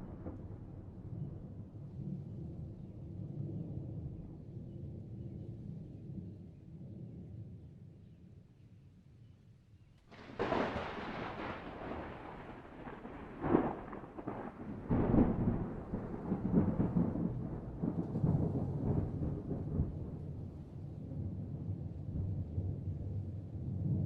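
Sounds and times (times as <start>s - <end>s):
thunder cracking and rumbling: 0.0s - 4.4s, 10.1s - 24.0s.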